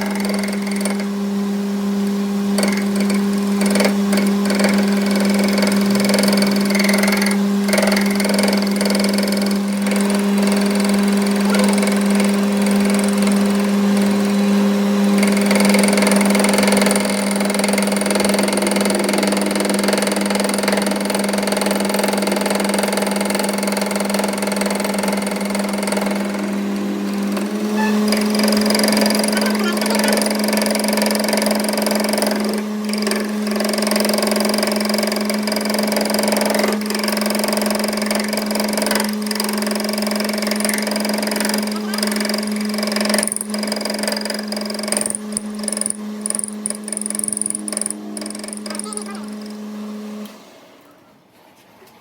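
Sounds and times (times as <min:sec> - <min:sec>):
motor humming: 0:00.0 - 0:51.1.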